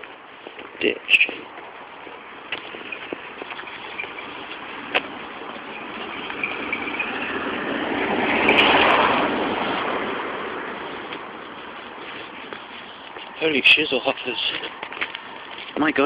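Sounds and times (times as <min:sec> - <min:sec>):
vehicle passing by: 0:02.2 - 0:14.2.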